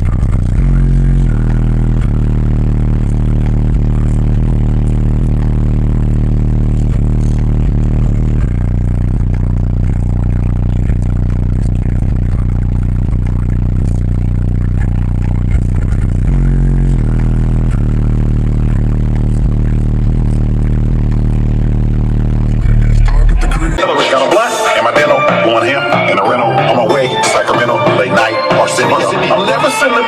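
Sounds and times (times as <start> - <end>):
deep bass from car subwoofers: 0.0 - 30.0.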